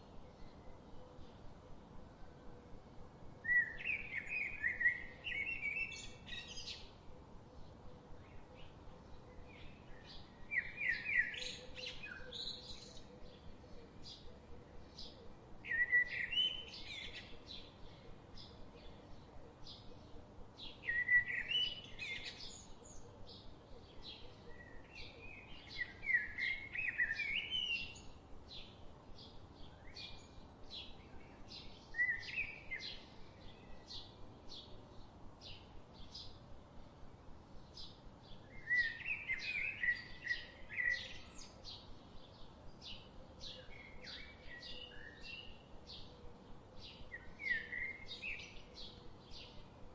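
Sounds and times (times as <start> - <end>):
birds singing warbled phrases: 38.4 - 49.8.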